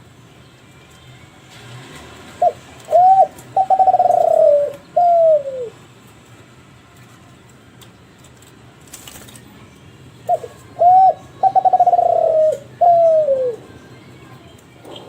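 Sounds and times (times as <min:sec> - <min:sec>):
dove cooing: 0:02.4 - 0:05.8, 0:10.3 - 0:13.8.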